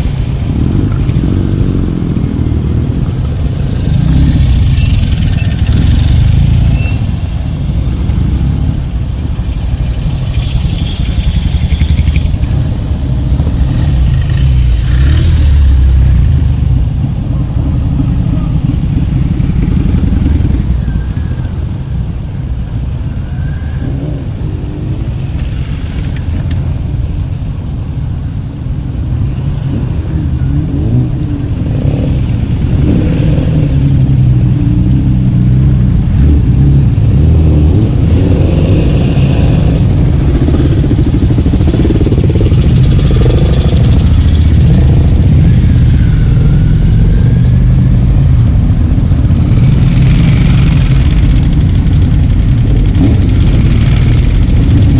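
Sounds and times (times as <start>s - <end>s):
motorcycle engines revving: 0.0s - 54.9s.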